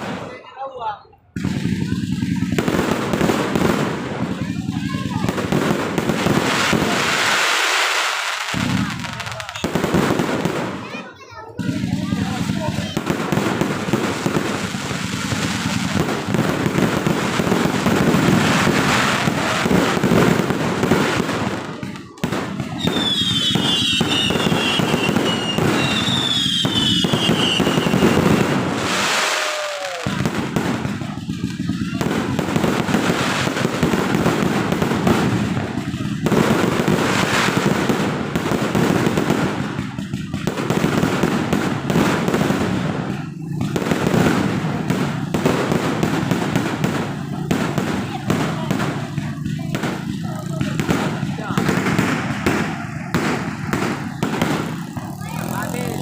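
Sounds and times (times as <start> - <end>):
fireworks bangs and crackling: 0.0 - 56.0
falling firework whistles: 22.6 - 32.0.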